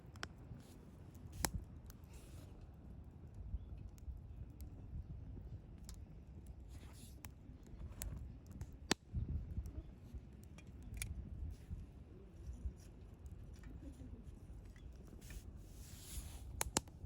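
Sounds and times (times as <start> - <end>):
campfire crackling: 0.0 - 17.0
fire pops: 1.1 - 2.2, 3.8 - 9.8, 14.7 - 17.0.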